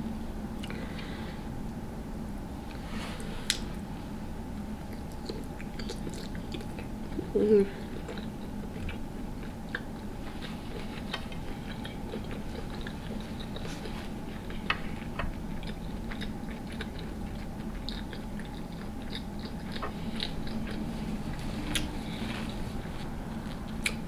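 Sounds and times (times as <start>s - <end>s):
wet chewing smacks: 4.9s - 7.4s, 8.0s - 24.0s.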